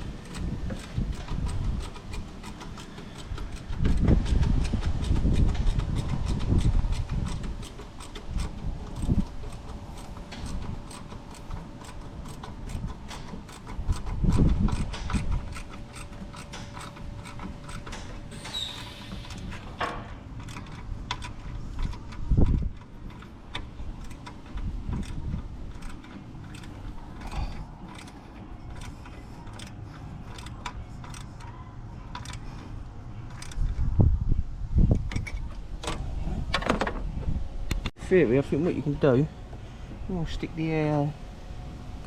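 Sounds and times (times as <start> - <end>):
tools and metal parts clinking: 5.6 - 32.7.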